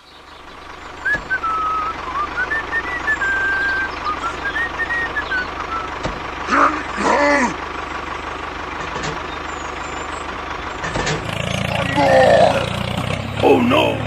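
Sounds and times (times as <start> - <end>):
tractor engine running: 0.0 - 14.0
thin wavering whistle: 1.0 - 6.0.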